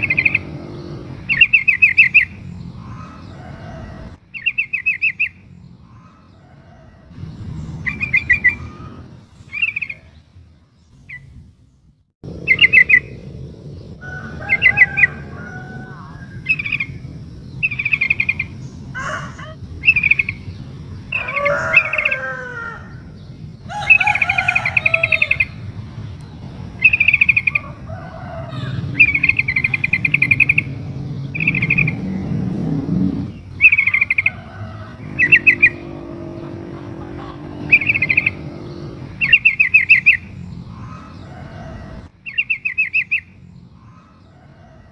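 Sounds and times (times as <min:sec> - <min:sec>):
bird chattering calls: 0:00.0 - 0:06.4, 0:07.2 - 0:10.2, 0:26.7 - 0:27.8, 0:28.4 - 0:41.4
low rumble: 0:07.1 - 0:19.0, 0:25.2 - 0:39.5
sliding bird calls: 0:28.5 - 0:42.1.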